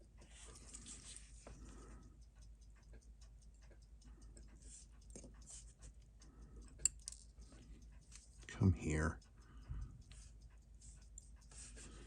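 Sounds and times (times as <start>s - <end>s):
metal tools clicking on watch parts: 6.6s - 9.1s.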